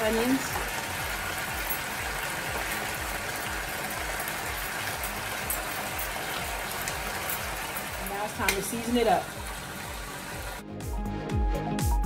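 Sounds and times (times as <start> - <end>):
potatoes frying in oil: 0.0 - 10.6
background music with low beat: 0.0 - 12.0.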